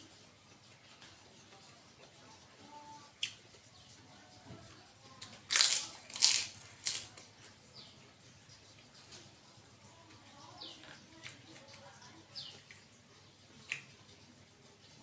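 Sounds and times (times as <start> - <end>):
man crunching crisp food: 5.2 - 7.3.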